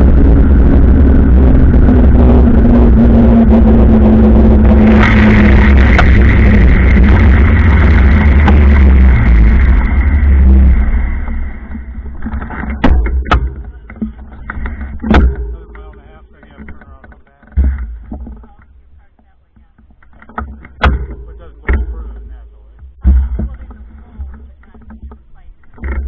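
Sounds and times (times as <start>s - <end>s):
wind on microphone: 0.0s - 19.0s
sharp clicks and knocks: 11.2s - 26.0s.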